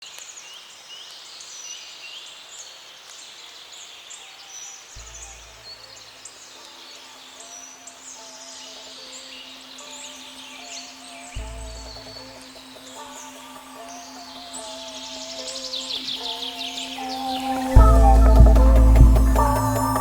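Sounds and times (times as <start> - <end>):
outdoor background noise: 0.0 - 20.0
low steady rumble: 17.8 - 20.0.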